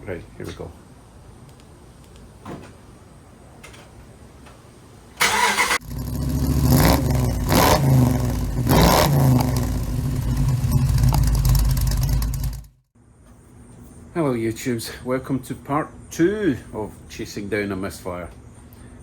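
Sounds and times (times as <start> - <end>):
truck engine cranking and starting: 5.2 - 12.8.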